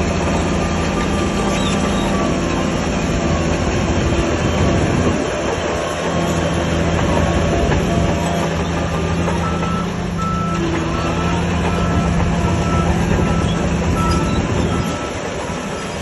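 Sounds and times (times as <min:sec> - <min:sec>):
diesel machine engine running: 0:00.0 - 0:16.0
reversing alarm beeping: 0:07.4 - 0:16.0.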